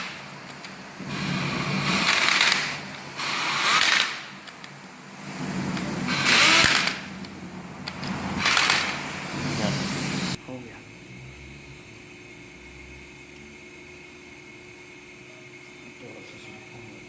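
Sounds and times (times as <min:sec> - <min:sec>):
power tool bursts: 0:00.0 - 0:04.5, 0:05.2 - 0:07.2, 0:07.9 - 0:10.4
steady low hum: 0:00.0 - 0:17.0.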